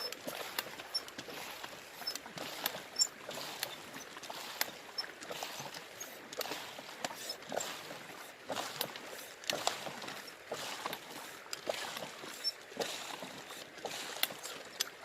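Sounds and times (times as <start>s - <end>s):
water splashing in a river: 0.0s - 15.0s.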